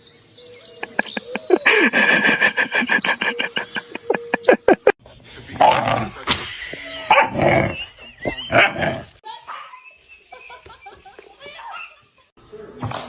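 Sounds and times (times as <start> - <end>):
dog barking and yipping: 7.0 - 9.7.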